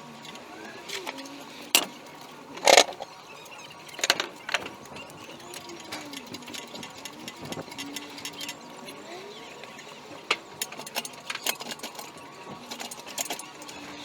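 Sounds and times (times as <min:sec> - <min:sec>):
metallic clicks and clanks: 0:00.0 - 0:14.0.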